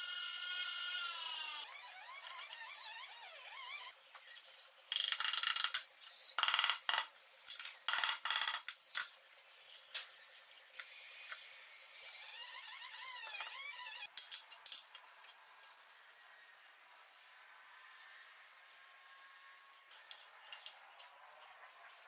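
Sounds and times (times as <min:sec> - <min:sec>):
short squeaks: 0:01.5 - 0:04.6, 0:11.9 - 0:14.1.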